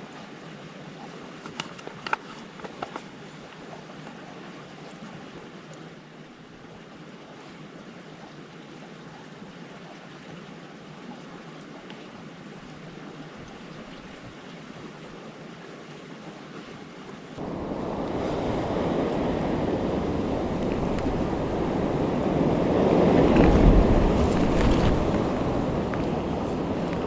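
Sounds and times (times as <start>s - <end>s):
strong wind buffeting microphone: 17.4s - 27.0s.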